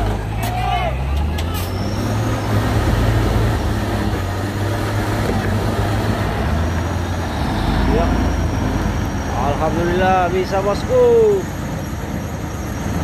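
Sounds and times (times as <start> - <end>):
road noise: 0.0 - 13.0
truck diesel engine under load: 0.0 - 13.0.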